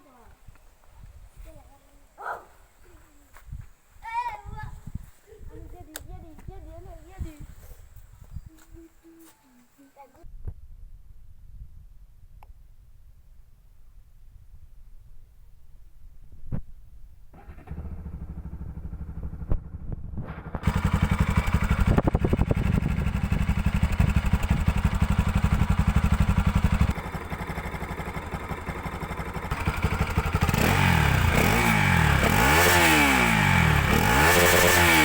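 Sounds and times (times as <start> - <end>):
engine revving: 17.4 - 35.0
motorcycle engine idling: 17.4 - 35.0.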